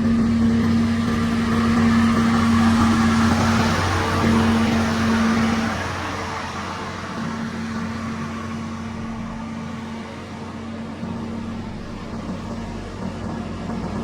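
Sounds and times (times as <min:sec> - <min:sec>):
construction machine diesel engine: 0:00.0 - 0:14.0.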